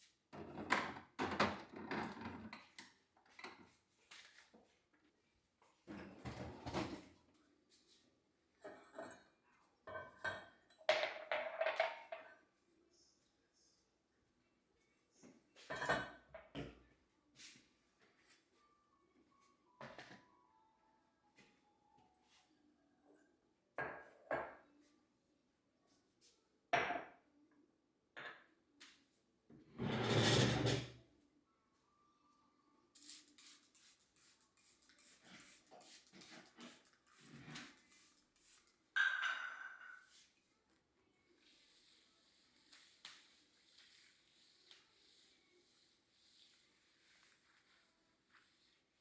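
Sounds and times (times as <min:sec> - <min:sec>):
objects knocking and clunking: 0:00.3 - 0:03.7
dishes and cutlery clattering: 0:08.6 - 0:12.4, 0:15.6 - 0:16.8, 0:29.7 - 0:31.0, 0:39.0 - 0:40.2.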